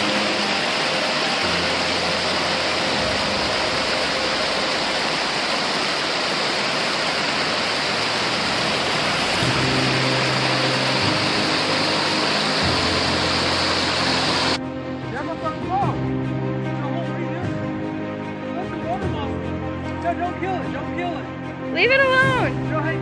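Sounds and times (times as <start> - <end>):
soft background music: 0.0 - 6.6, 7.2 - 23.0
loud rushing hiss: 0.0 - 14.6.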